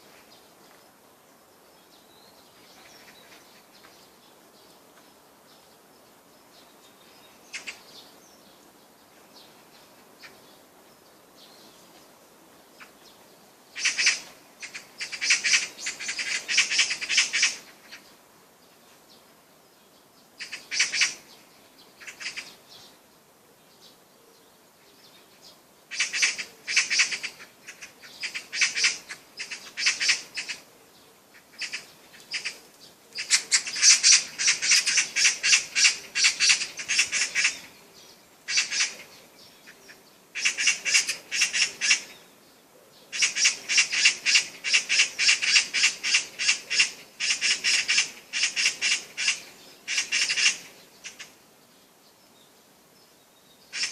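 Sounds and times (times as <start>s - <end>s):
bird calling in quick notes: 38.5s - 42.2s.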